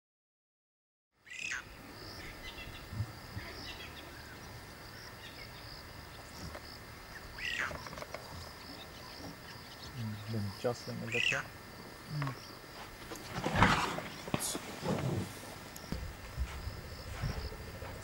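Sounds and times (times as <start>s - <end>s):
loud arching bird calls: 1.2s - 12.7s
wild birds calling and chirping: 1.2s - 18.0s.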